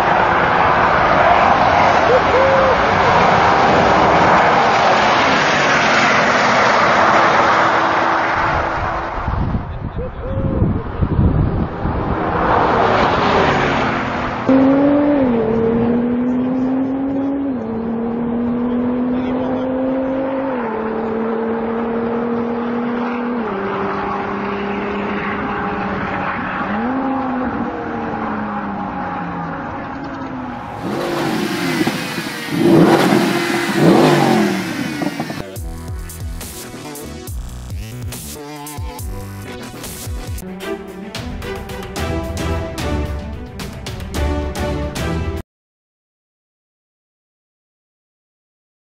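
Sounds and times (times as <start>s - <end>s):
car engine accelerating hard: 0.0s - 9.9s, 10.8s - 35.6s
car rushing past: 0.0s - 9.9s, 10.8s - 35.6s
music: 35.5s - 45.4s.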